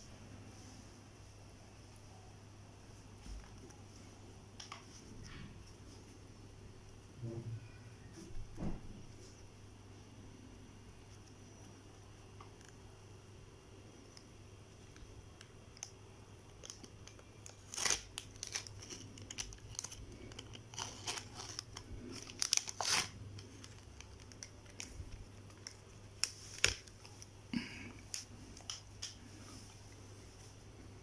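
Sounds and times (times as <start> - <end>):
plastic packaging tearing and crinkling: 15.8 - 27.3.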